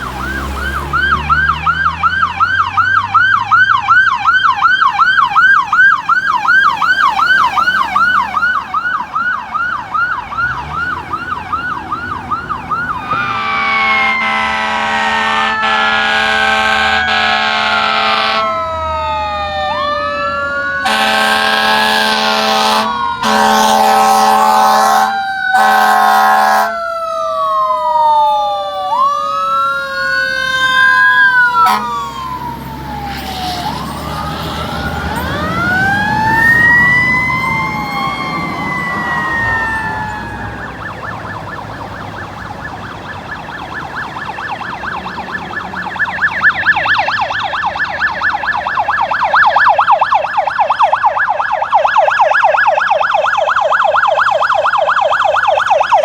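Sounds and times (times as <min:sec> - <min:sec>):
heavy truck engine rumbling: 0:00.0 - 0:51.8
wailing sirens: 0:00.0 - 0:56.0
air horn blast: 0:13.0 - 0:18.8, 0:20.8 - 0:26.8, 0:31.4 - 0:32.2.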